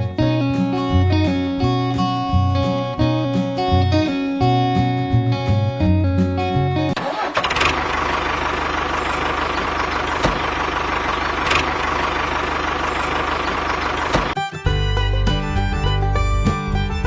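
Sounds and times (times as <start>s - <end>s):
small tractor engine chugging: 7.5s - 17.0s.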